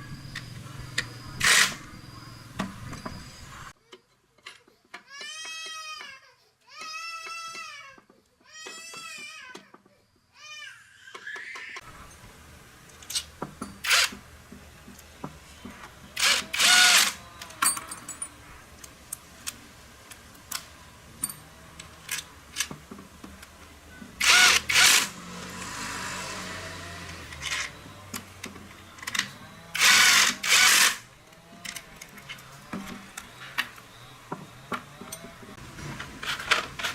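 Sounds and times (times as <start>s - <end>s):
handheld power tool bursts: 1.4s - 1.8s, 13.8s - 14.2s, 16.2s - 17.2s, 24.2s - 27.7s, 29.8s - 31.1s.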